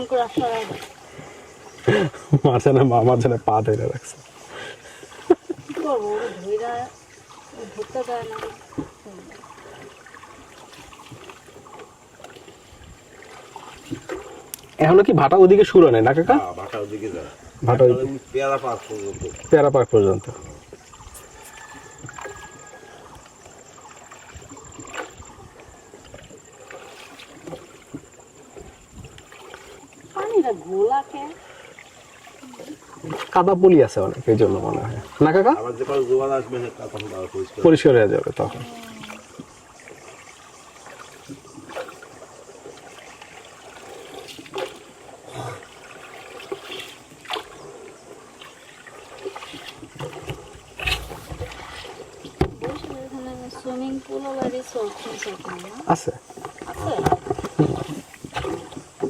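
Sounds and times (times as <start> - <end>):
short splashes: 0.0 - 2.4, 3.8 - 59.0
water lapping around a boat: 0.0 - 59.0.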